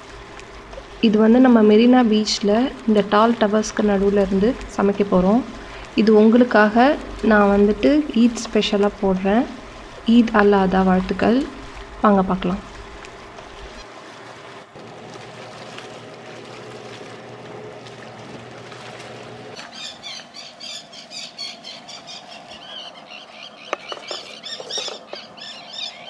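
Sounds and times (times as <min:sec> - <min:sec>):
steady low hum: 0:00.0 - 0:26.0
small birds chirping: 0:19.6 - 0:26.0.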